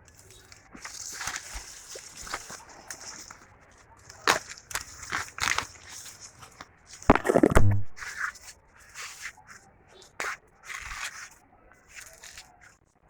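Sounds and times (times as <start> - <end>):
corn husks crackling: 0.0 - 8.3.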